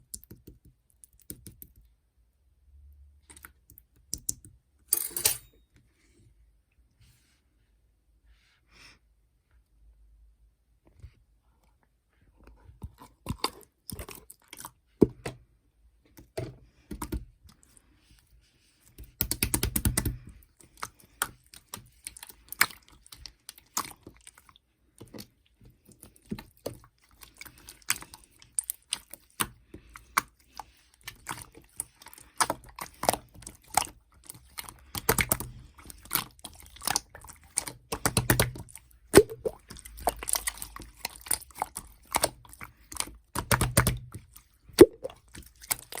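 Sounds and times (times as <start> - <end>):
slime squishing by hand: 12.5 - 15.6, 16.2 - 46.0
air-bubble pops: 39.2 - 39.6, 44.8 - 45.2.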